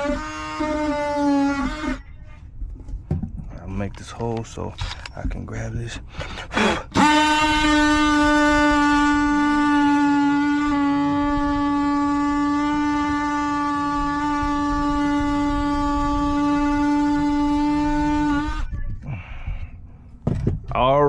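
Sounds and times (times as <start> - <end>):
power tool cutting sheet metal: 0.0 - 2.0, 6.1 - 18.7.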